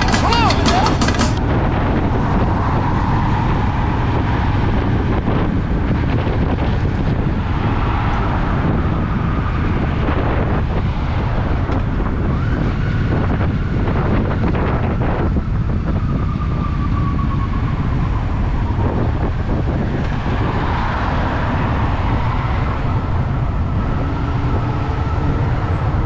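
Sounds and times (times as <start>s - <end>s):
motorcycle engine running: 0.0s - 2.2s
wind rushing over microphone: 0.0s - 26.0s.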